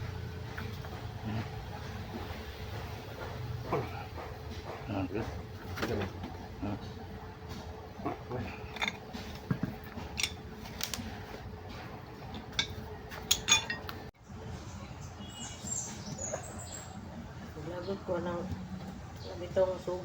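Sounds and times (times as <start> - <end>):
metal tools clinking: 8.5 - 11.0, 12.4 - 14.1.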